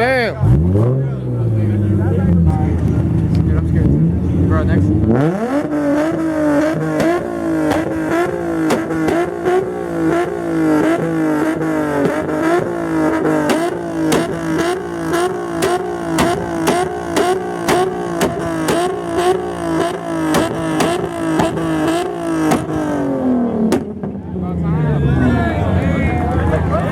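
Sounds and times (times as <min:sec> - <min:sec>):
car engine bouncing off rev limiter: 0:05.0 - 0:24.5.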